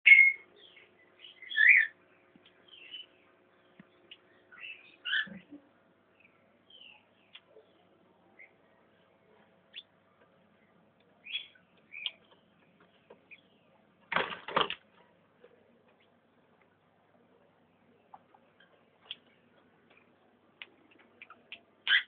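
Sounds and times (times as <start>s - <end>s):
cockatiels chirping: 0.1s - 2.0s, 4.5s - 5.4s, 11.2s - 12.2s
wings flapping: 14.1s - 14.8s.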